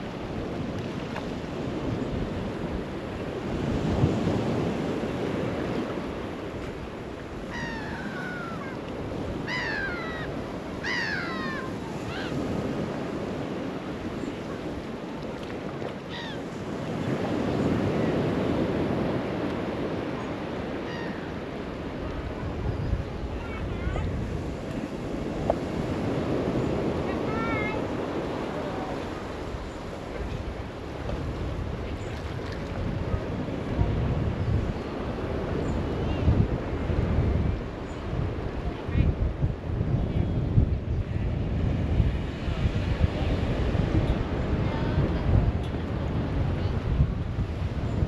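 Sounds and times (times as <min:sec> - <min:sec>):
waves washing onto shore: 0:00.0 - 0:48.0
gulls calling: 0:07.4 - 0:12.6, 0:16.1 - 0:16.5.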